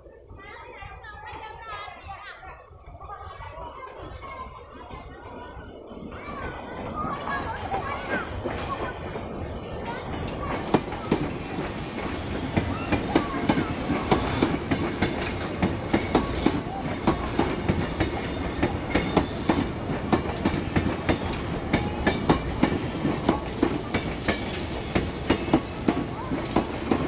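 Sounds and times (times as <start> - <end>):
train rumble: 3.7 - 27.0
train wheels clacking over track: 6.0 - 27.0.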